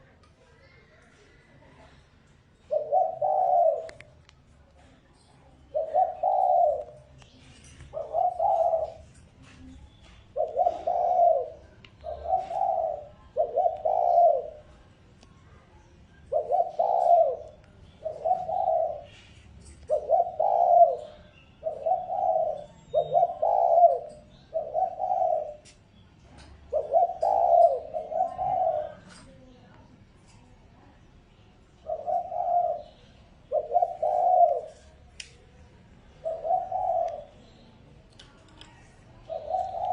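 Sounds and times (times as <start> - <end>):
dove cooing: 2.6 - 4.2, 5.6 - 14.9, 16.1 - 30.4, 31.7 - 35.1, 36.0 - 37.4, 38.8 - 39.9.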